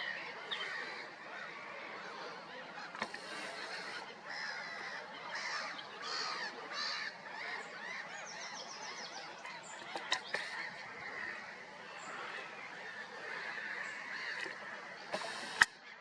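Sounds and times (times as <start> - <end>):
geese honking: 9.9 - 15.7.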